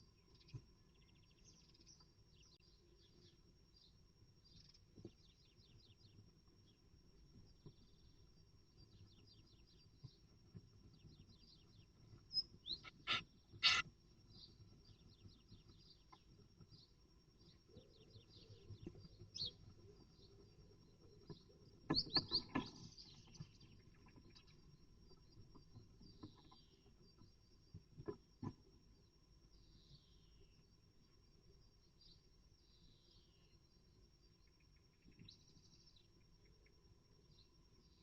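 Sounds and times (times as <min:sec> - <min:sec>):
small birds chirping: 0:00.0 - 0:30.7, 0:31.8 - 0:38.0.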